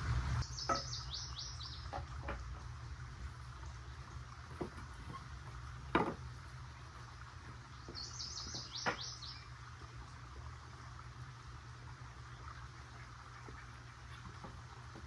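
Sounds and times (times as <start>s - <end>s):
small bird chirping: 0.4s - 2.0s, 7.6s - 9.5s.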